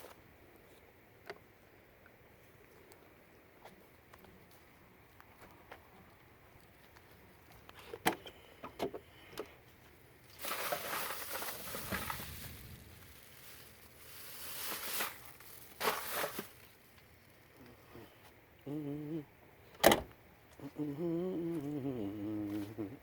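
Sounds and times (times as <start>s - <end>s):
oil pouring through a funnel: 10.3s - 17.5s.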